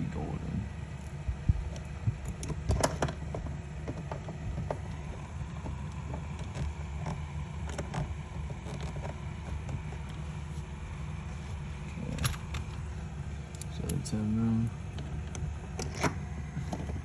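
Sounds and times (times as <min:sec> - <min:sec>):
steady low rumble: 0:00.0 - 0:17.0
parts being handled: 0:01.6 - 0:14.1.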